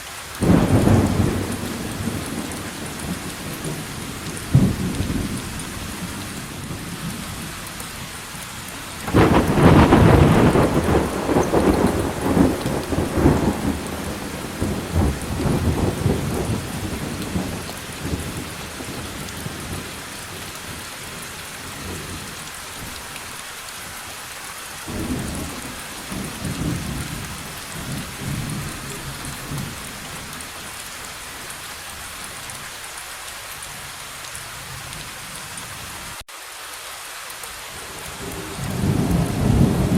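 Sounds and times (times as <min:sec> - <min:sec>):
steady rain: 0:00.0 - 0:39.9
thunder rumbling: 0:00.4 - 0:07.5, 0:09.0 - 0:23.0, 0:24.9 - 0:30.4, 0:38.3 - 0:39.9.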